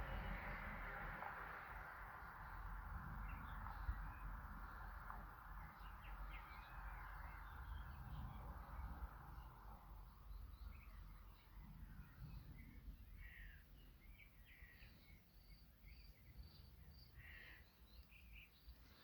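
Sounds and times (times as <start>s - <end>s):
low rumble and hiss: 0.0s - 14.7s
birds chirping: 2.2s - 19.0s.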